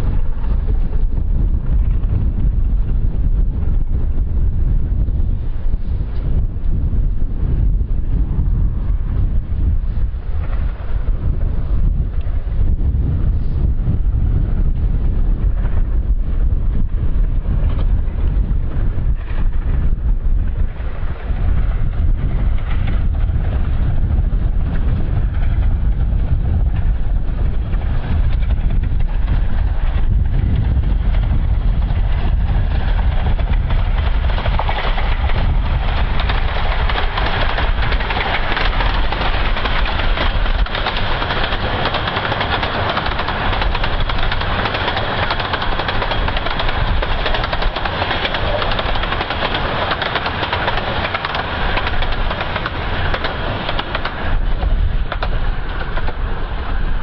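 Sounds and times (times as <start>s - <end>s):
wind rumbling on microphone: 0.0s - 57.0s
miniature train running: 20.6s - 56.9s.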